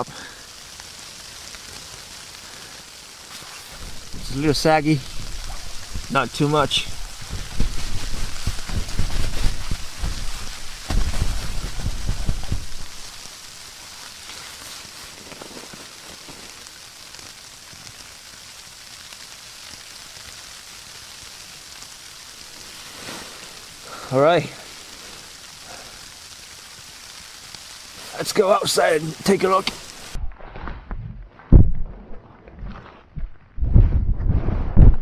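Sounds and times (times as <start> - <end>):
blowing snow on tarp: 0.6 - 30.2
wind buffeting microphone: 3.8 - 13.3, 30.1 - 35.0.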